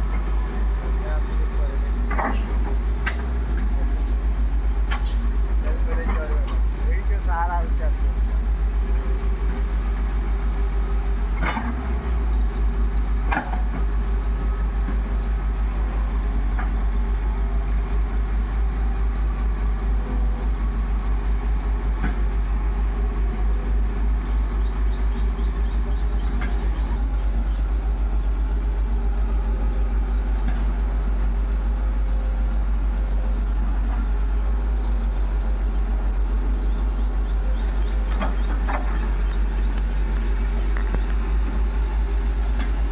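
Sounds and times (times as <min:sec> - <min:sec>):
diesel engine rumbling: 0:00.0 - 0:42.9.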